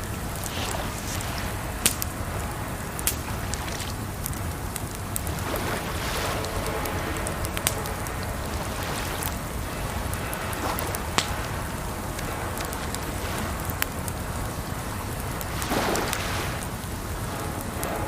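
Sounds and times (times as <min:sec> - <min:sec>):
water rushing: 0:00.0 - 0:18.0
wood fire crackling and popping: 0:00.0 - 0:18.0.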